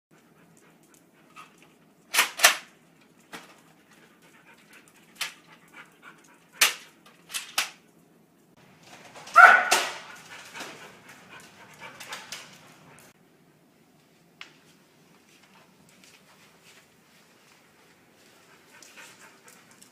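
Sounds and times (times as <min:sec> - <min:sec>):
dog barking: 0:09.3 - 0:10.2.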